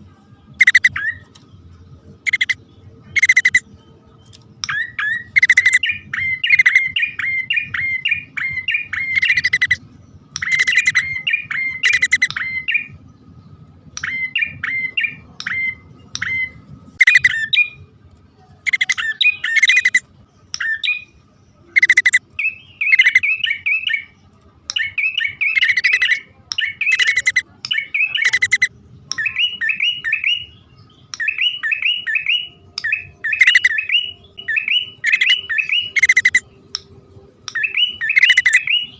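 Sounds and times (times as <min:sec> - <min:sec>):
bird quick sharp chirps: 0:00.6 - 0:01.4, 0:02.3 - 0:02.6, 0:03.2 - 0:03.6, 0:04.6 - 0:09.8, 0:10.4 - 0:12.7, 0:31.2 - 0:36.4.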